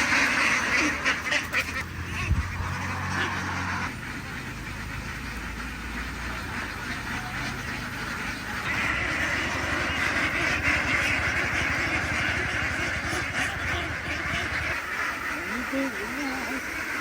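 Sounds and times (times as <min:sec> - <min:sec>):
ducks quacking: 0:00.0 - 0:17.0.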